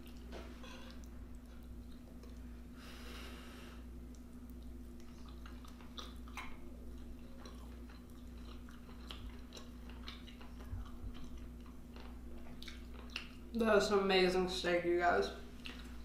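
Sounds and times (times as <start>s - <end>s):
chewing food: 0.0s - 2.7s, 4.0s - 13.6s, 15.5s - 16.0s
wet mouth clicks and smacks: 4.1s - 6.6s.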